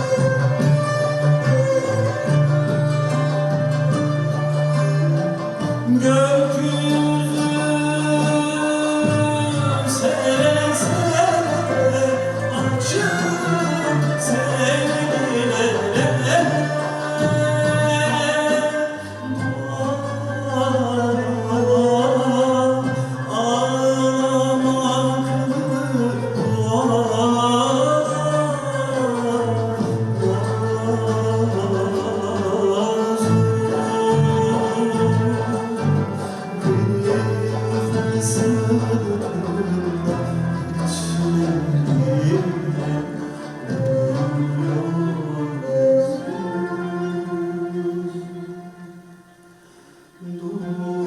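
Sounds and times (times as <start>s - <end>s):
instrumental accompaniment: 0.0s - 51.0s
choir singing: 10.1s - 18.2s.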